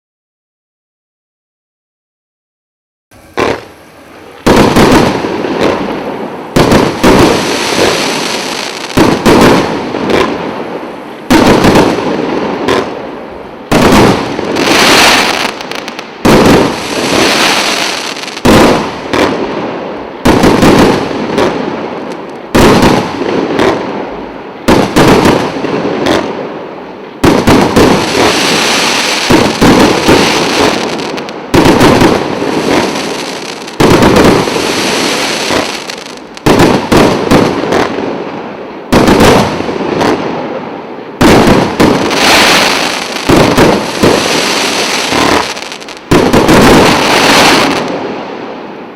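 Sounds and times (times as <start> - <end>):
fireworks cake firing shots: 3.3 - 10.6, 11.3 - 13.0, 13.7 - 19.6, 20.2 - 24.0, 24.7 - 26.4, 27.2 - 38.2, 38.9 - 40.5, 41.2 - 48.2.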